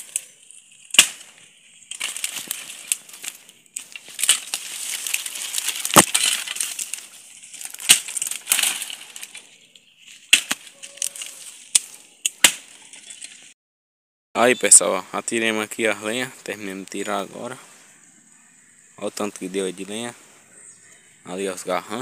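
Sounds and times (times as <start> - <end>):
branches snapping: 0.0 - 13.5
dry branches and leaves crackling: 0.0 - 13.6, 15.4 - 22.0.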